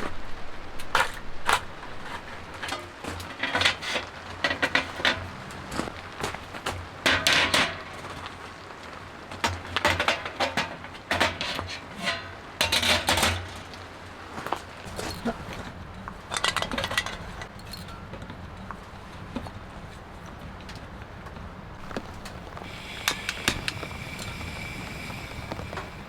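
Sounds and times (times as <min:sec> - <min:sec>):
dishes and utensils clattering: 0:02.1 - 0:05.9, 0:07.0 - 0:07.9, 0:09.8 - 0:13.6, 0:16.3 - 0:17.9
low background hum: 0:21.8 - 0:26.0.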